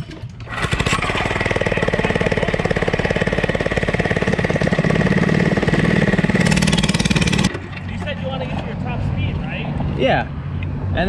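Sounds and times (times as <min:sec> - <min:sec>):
small engine running hard: 0:00.4 - 0:07.6.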